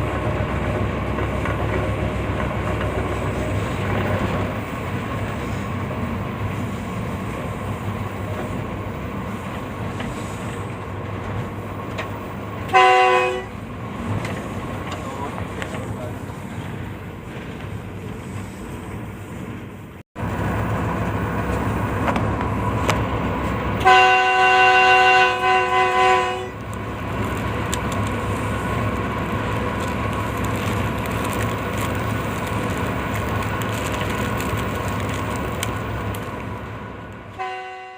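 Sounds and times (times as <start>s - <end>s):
train rumbling: 0.0s - 37.9s
locomotive horn chord: 12.7s - 13.6s, 23.8s - 26.6s, 37.3s - 37.9s.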